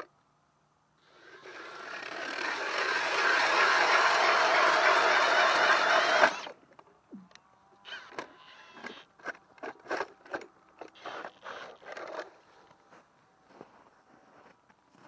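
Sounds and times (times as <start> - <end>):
drill spinning ice auger: 1.1 - 6.6.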